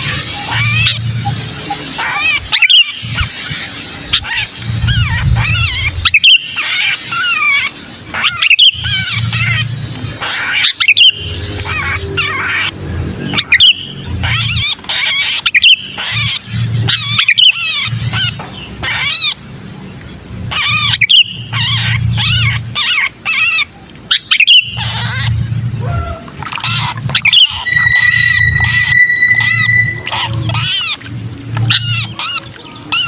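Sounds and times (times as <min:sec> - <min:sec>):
bird distress calls: 0:00.0 - 0:19.4, 0:20.5 - 0:31.1
low hum: 0:27.4 - 0:31.6.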